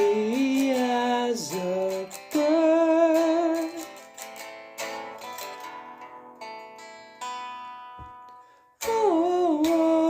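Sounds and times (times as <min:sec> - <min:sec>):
person singing: 0:00.0 - 0:04.1, 0:08.8 - 0:10.0
acoustic guitar chords: 0:00.0 - 0:10.0.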